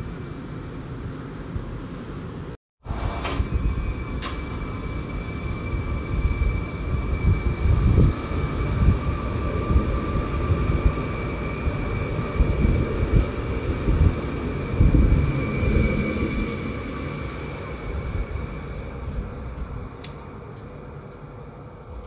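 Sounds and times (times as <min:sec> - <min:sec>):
train rumble: 0:00.0 - 0:22.0.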